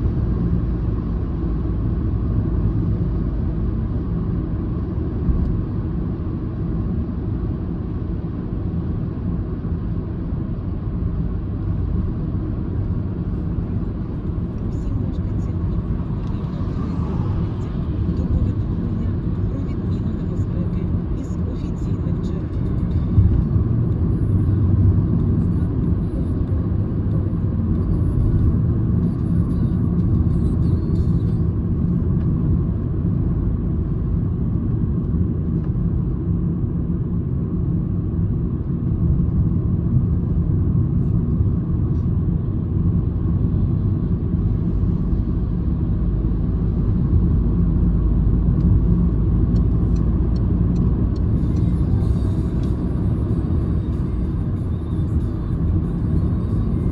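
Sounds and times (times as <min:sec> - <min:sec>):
car engine and tyre rumble: 0:00.0 - 0:56.9.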